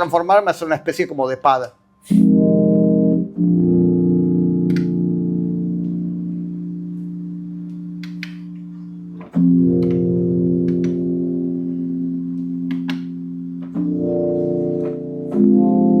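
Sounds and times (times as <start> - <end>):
synthesizer pad chords: 2.0 - 16.0.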